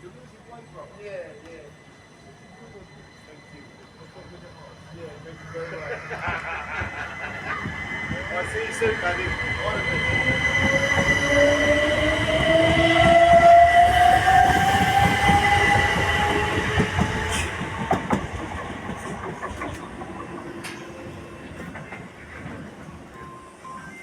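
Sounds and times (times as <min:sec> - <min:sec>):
train whine rising in pitch: 0:00.1 - 0:22.2
train wheels clicking over rail joints: 0:14.5 - 0:22.8.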